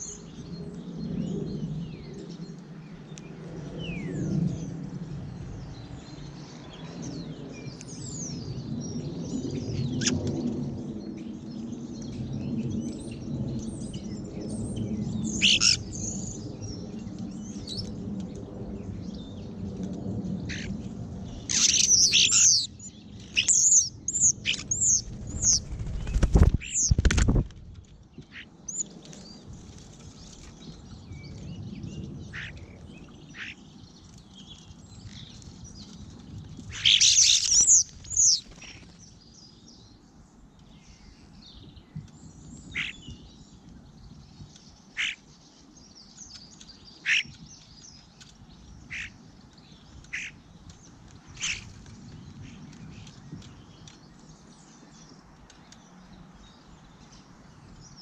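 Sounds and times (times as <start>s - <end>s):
low rumble: 0.4s - 28.2s
rapid high-pitched bird calls: 15.3s - 16.2s, 21.4s - 27.1s, 36.7s - 39.0s.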